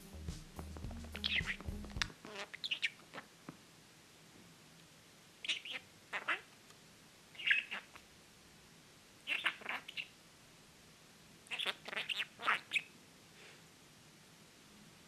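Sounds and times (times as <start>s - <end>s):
budgerigar chattering: 1.2s - 3.3s, 5.4s - 6.5s, 7.4s - 8.0s, 9.3s - 10.1s, 11.5s - 12.9s.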